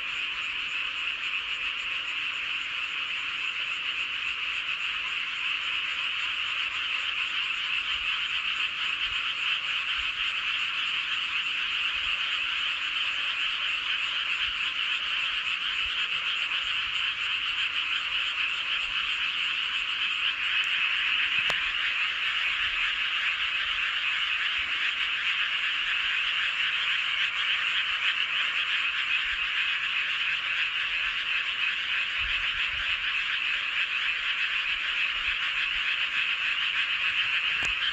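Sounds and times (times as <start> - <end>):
frogs croaking in chorus: 0.0 - 37.9.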